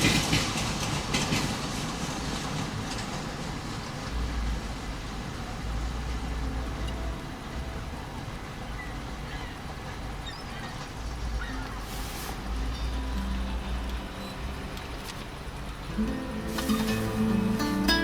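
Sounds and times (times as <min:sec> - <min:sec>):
train rolling rumble: 0:00.0 - 0:18.0
noisy hiss: 0:04.1 - 0:18.0.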